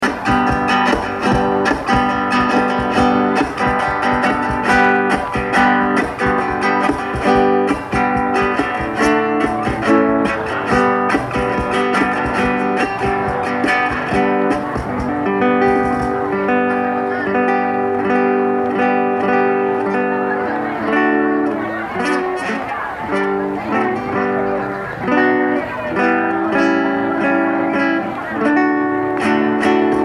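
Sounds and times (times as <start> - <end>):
plucked guitar: 0.0 - 30.0.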